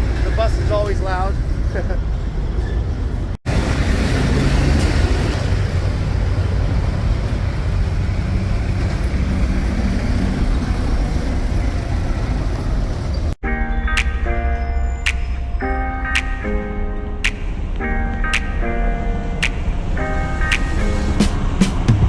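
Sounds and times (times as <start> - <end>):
vehicle engine rumbling: 0.0 - 13.4
road noise: 0.0 - 22.0.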